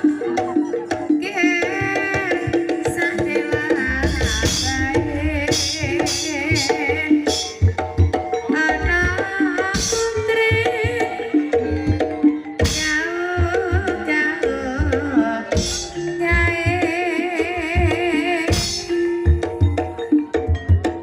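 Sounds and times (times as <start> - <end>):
person singing wavering vocal: 0.0 - 20.1
hand drum pattern: 0.0 - 21.0
sustained gamelan notes: 0.0 - 21.0.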